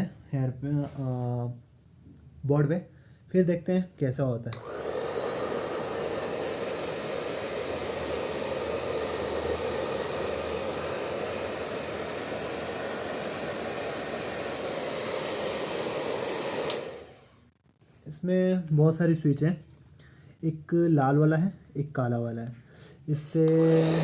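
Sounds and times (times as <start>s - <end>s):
hair dryer blowing air: 4.5s - 17.4s, 23.4s - 24.0s
hair dryer switching off: 4.5s - 17.4s, 23.4s - 24.0s.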